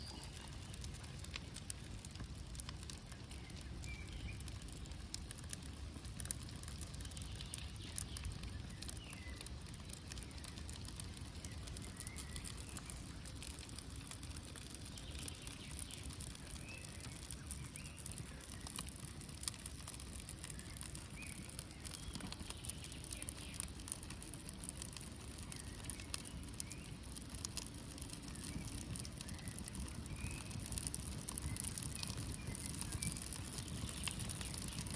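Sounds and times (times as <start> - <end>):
birds chirping faintly: 0.0 - 1.8, 6.7 - 34.9
campfire crackling and popping: 0.0 - 34.9.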